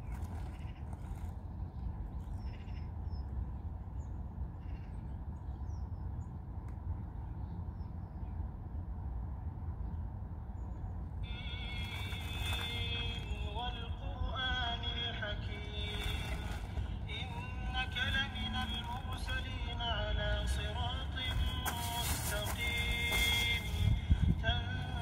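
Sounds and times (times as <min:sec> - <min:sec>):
small birds chirping: 0:00.0 - 0:06.4
steady low rumble: 0:00.0 - 0:25.0.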